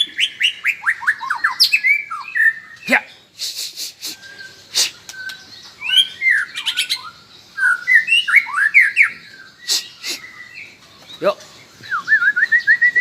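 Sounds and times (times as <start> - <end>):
bird chirps and squawks: 0.0 - 11.4.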